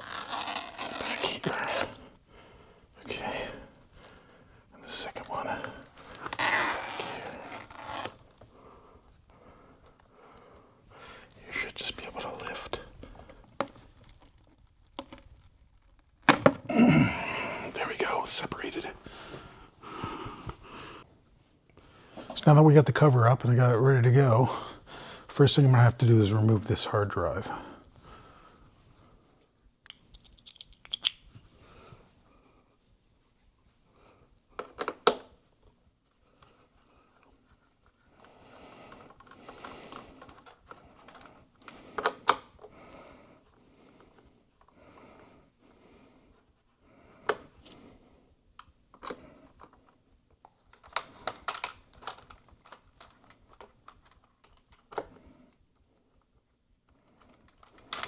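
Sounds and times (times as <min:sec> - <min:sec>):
small tools clicking and tapping: 0:29.9 - 0:31.2.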